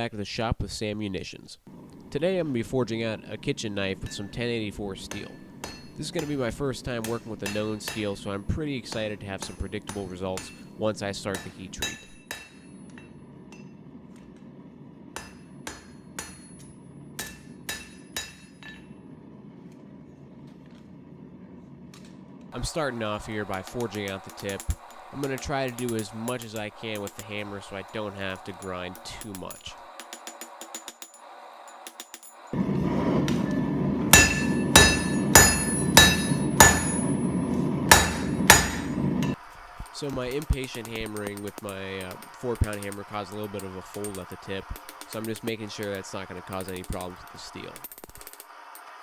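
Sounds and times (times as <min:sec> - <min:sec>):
hammer striking steel on anvil: 0:01.7 - 0:13.9, 0:15.2 - 0:19.1, 0:22.6 - 0:48.9
forge roaring: 0:32.5 - 0:39.4.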